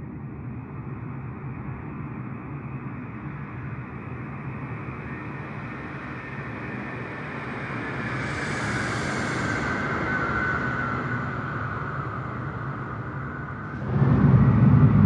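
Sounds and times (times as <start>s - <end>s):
jet engines rumbling: 13.6s - 15.0s.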